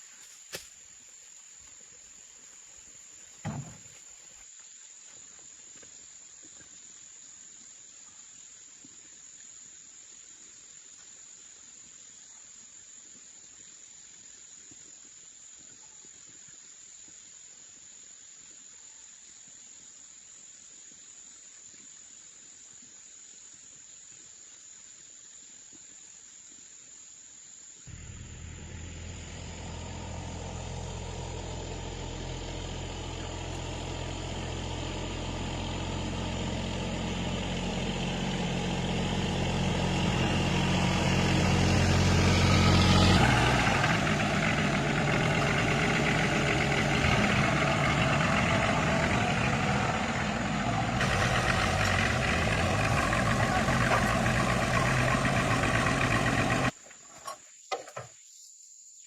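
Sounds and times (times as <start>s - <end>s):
motor vehicle engine running: 27.9s - 56.8s.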